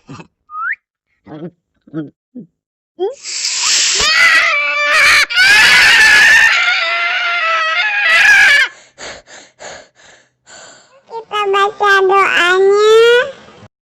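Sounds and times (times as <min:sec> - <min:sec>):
shrill high-pitched scream: 0:03.2 - 0:08.8.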